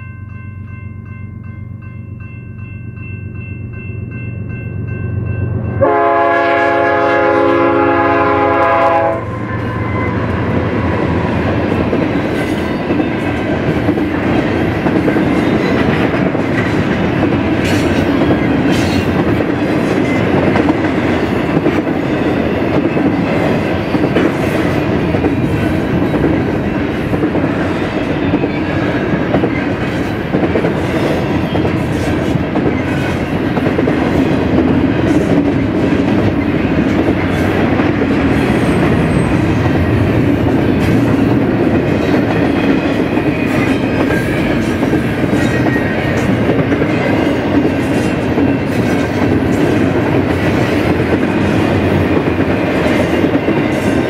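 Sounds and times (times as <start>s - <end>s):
train wheels rumbling on rails: 4.6s - 54.0s
locomotive horn blast: 5.8s - 10.3s
clickety-clack over rail joints: 10.1s - 54.0s.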